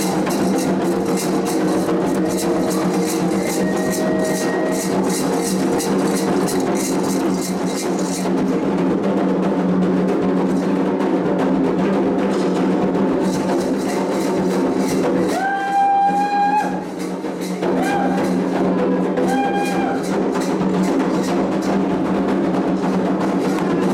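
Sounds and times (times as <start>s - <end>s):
held high notes: 0.0s - 8.4s
hand drums and percussion: 0.0s - 23.9s.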